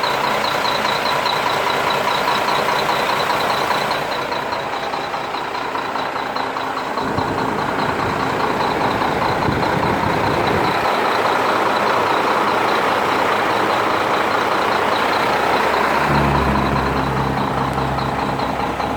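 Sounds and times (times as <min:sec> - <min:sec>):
truck diesel engine running: 0:00.0 - 0:18.9
deep low drone: 0:15.2 - 0:18.9.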